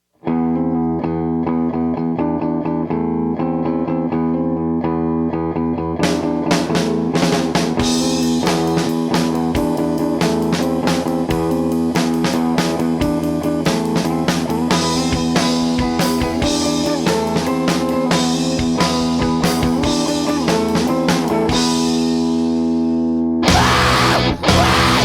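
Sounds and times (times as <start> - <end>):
rock band music: 5.6 - 25.0.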